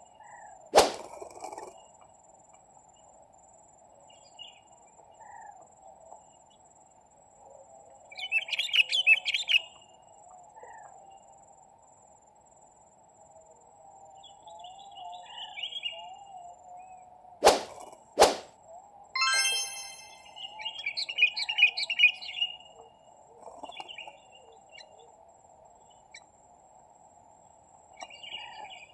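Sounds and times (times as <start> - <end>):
sharp snap: 0.8 - 1.1, 17.4 - 18.5.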